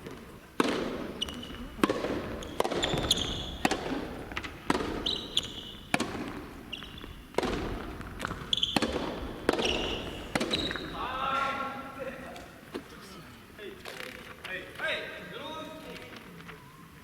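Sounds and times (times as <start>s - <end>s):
ball bouncing on court: 0.0s - 11.5s
tennis ball hit by rackets: 0.0s - 11.5s
shoe squeaks: 1.1s - 1.8s, 2.4s - 3.7s, 4.9s - 5.9s, 6.6s - 7.3s, 8.2s - 11.1s.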